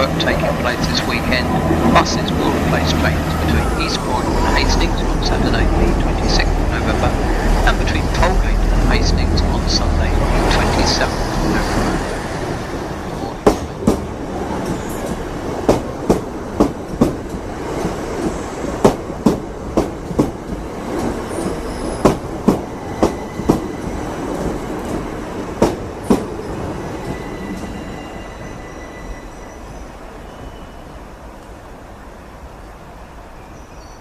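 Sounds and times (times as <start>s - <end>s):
train rumble: 0.0s - 33.5s.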